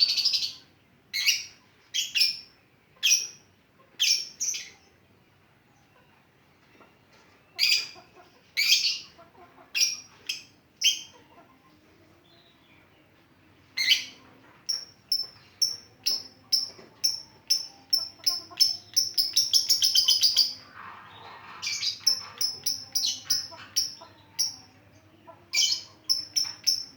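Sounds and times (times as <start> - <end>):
lovebird chirping: 0.0 - 4.8, 9.8 - 11.2, 13.6 - 26.9.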